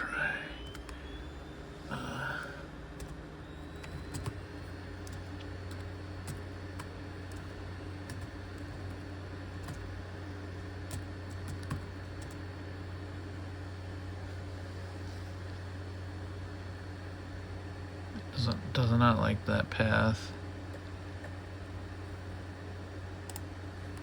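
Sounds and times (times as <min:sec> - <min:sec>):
faint high whine: 0:00.0 - 0:24.0
machine hum: 0:00.0 - 0:24.0
laptop keyboard keystrokes: 0:03.0 - 0:04.4, 0:09.6 - 0:09.9, 0:10.8 - 0:12.4, 0:23.2 - 0:24.0.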